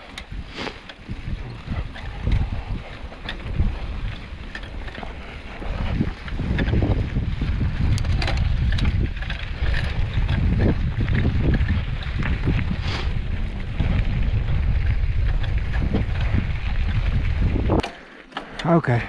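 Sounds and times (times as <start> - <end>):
wind rumbling on microphone: 0.0 - 17.9.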